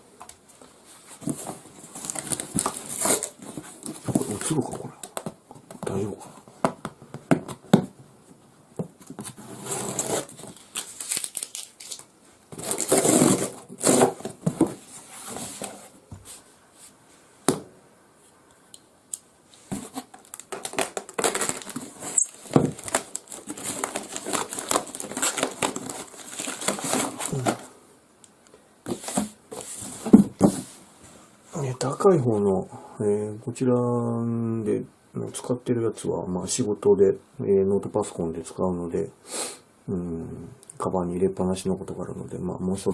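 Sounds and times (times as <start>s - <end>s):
wrapping crinkling and rustling: 0.8s - 6.2s, 9.1s - 15.9s, 19.5s - 27.7s.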